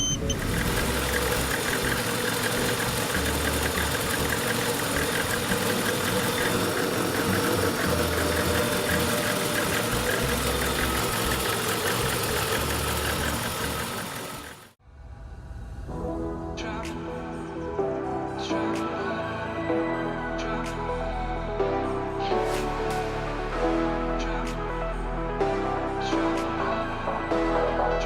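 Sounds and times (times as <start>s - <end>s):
car engine idling with ticking: 0.0s - 14.8s.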